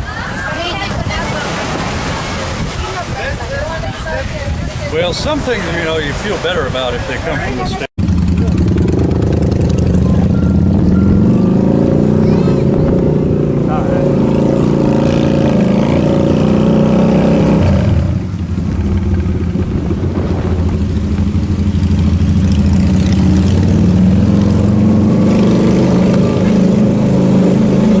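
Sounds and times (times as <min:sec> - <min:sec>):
motorcycle engine running: 0:08.0 - 0:28.0.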